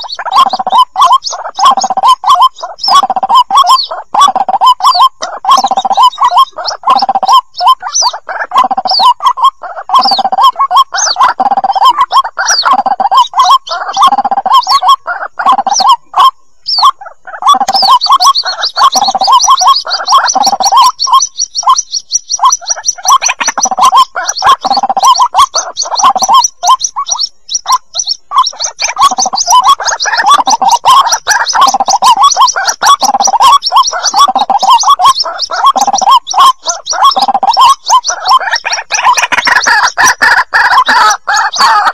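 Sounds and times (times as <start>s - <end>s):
bird chicks calling: 0.0s - 41.9s.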